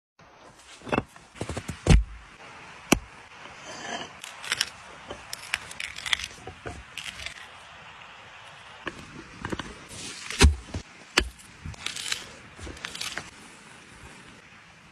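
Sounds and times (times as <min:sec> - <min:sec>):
food being handled and cut: 0:03.5 - 0:07.6, 0:08.5 - 0:13.4.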